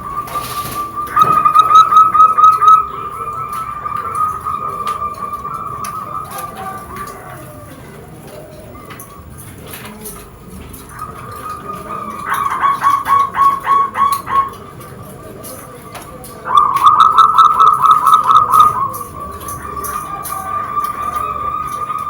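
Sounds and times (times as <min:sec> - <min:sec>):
dove cooing: 0:00.0 - 0:22.0
steady thin tone: 0:00.1 - 0:07.2, 0:16.5 - 0:22.0.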